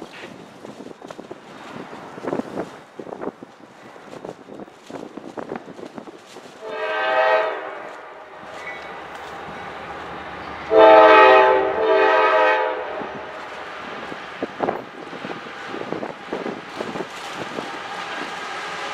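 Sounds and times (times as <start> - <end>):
wind buffeting microphone: 0.0 - 10.8, 11.6 - 18.9
locomotive air horn: 6.6 - 8.6, 10.6 - 13.7
locomotive engine drone: 7.7 - 18.9.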